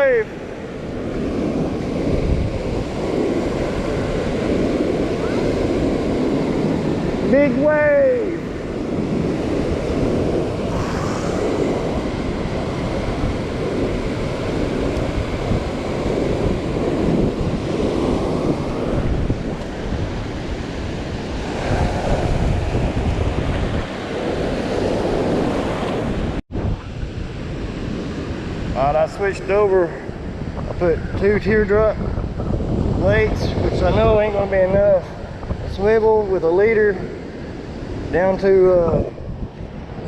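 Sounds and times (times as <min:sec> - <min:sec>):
surf breaking on beach: 0:00.0 - 0:40.0
wind buffeting microphone: 0:00.0 - 0:40.0.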